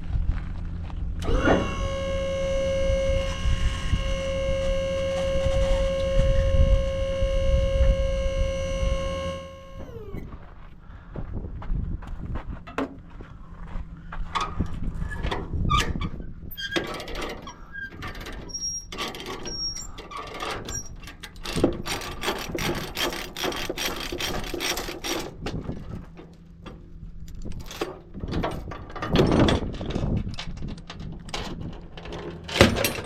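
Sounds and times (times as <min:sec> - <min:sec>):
engine idling: 0:00.0 - 0:11.3
metal chains clanking: 0:31.3 - 0:33.0.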